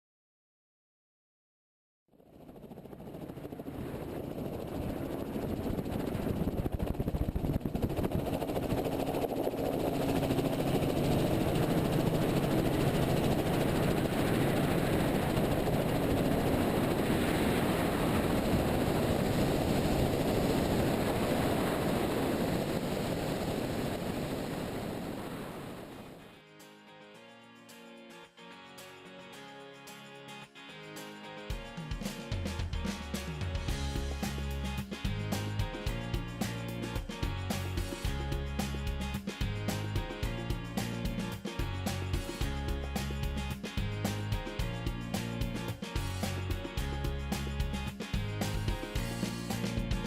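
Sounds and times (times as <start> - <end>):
helicopter engine and rotor: 2.2 - 26.3.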